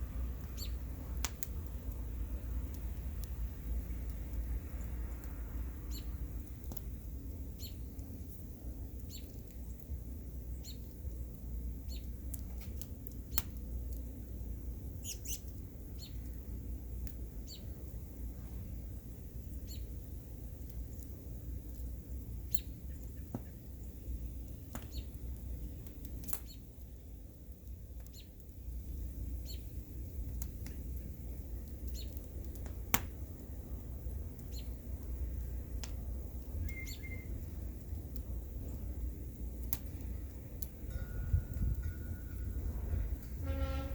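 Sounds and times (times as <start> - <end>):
bonfire crackling and popping: 0.0 - 43.5
steady low rumble: 37.3 - 43.9.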